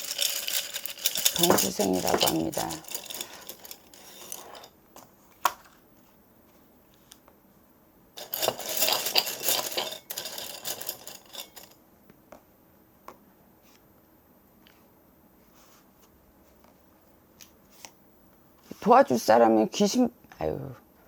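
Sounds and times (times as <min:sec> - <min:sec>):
small hard objects rattling: 0:00.0 - 0:04.7, 0:08.2 - 0:11.7.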